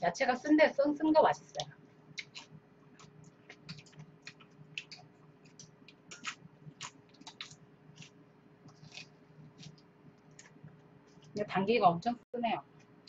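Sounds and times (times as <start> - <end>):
raw vegetables being chewed: 1.6 - 11.4.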